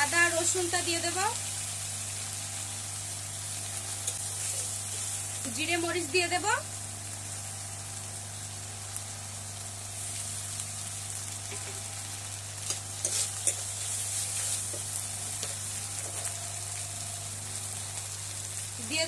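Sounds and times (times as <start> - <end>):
paste sizzling in hot oil: 0.0 - 19.0
metal spatula scraping pan: 12.6 - 14.8.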